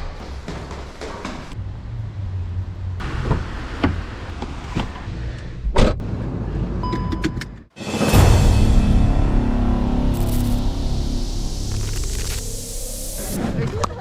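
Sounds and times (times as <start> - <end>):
low vehicle rumble: 0.0 - 6.8
loud rushing noise: 7.8 - 13.9.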